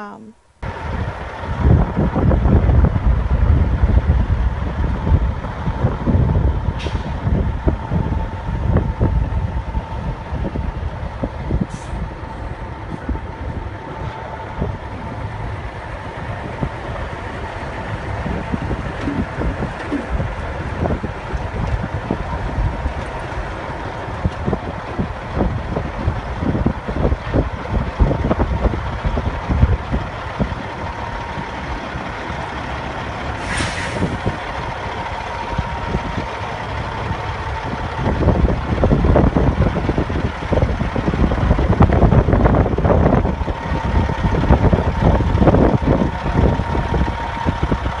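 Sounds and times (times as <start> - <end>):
truck diesel engine rumbling: 0.0 - 48.0
short air hiss: 33.4 - 34.2.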